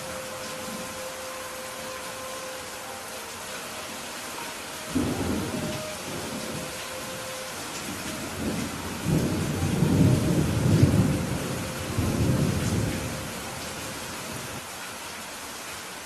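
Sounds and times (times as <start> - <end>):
rain hissing: 0.0 - 16.0
thunder rumbling: 4.9 - 13.6.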